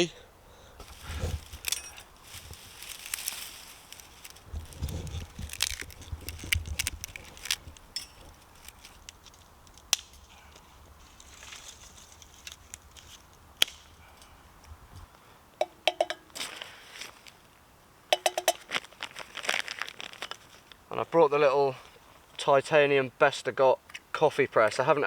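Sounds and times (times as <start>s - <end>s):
dry twigs snapping: 0.8s - 17.4s, 18.2s - 20.8s
light metal clinks: 1.6s - 3.4s, 7.9s - 8.4s, 15.6s - 16.3s, 18.1s - 18.6s.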